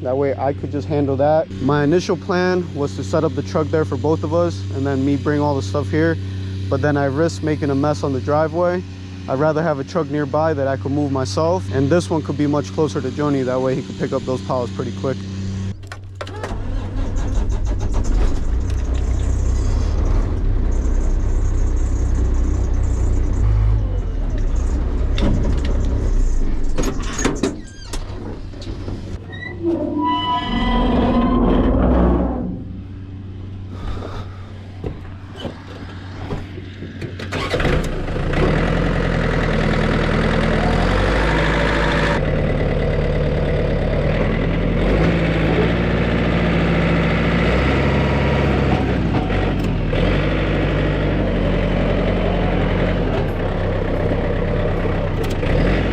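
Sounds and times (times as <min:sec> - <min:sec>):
vehicle engine running: 0:00.0 - 0:26.8, 0:31.7 - 0:55.9
rising whine: 0:29.3 - 0:36.3.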